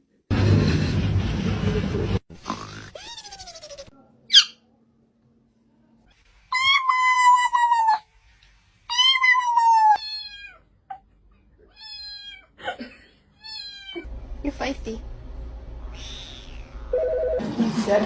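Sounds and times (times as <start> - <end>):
cat meowing: 2.8 - 3.9, 8.9 - 10.6, 11.6 - 12.5, 13.4 - 14.0, 15.9 - 17.0.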